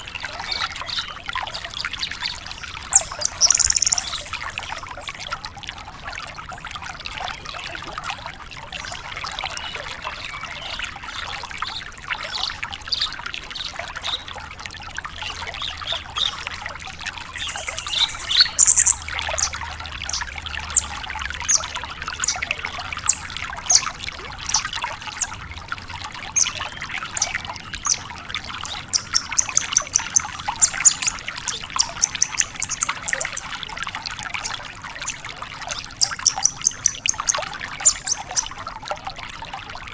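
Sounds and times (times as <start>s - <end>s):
lark singing chattering song: 2.7s - 5.1s, 17.4s - 21.6s, 22.2s - 23.8s, 28.7s - 33.5s, 35.9s - 38.4s
high whistled bird notes: 2.9s - 4.4s, 17.4s - 20.2s.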